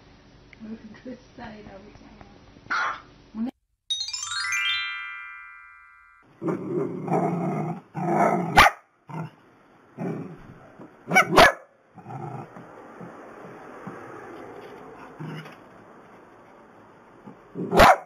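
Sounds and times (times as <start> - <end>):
small dogs barking: 2.7 - 3.1, 8.0 - 9.3, 11.0 - 12.2, 17.5 - 18.0
rising chime sweep: 3.9 - 6.3.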